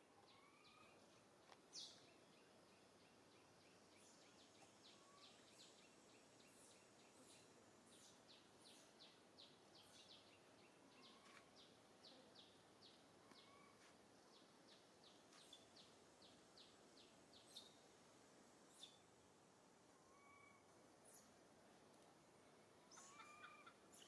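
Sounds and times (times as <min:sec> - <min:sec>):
bird chirping: 0:00.1 - 0:17.8, 0:18.7 - 0:19.0, 0:22.8 - 0:24.0.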